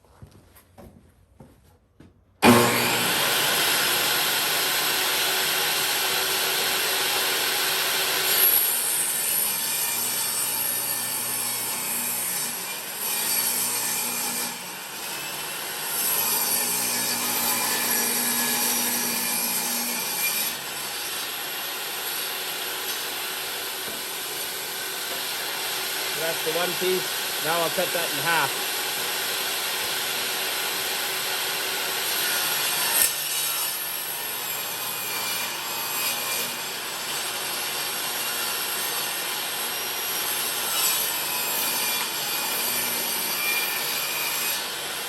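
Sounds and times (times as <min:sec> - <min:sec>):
table saw ripping wood: 0:02.4 - 0:45.0.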